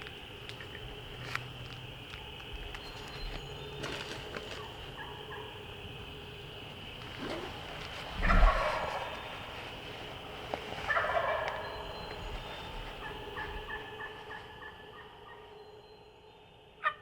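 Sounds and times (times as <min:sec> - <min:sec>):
wild turkey gobbling: 0:02.6 - 0:15.6, 0:16.8 - 0:17.0.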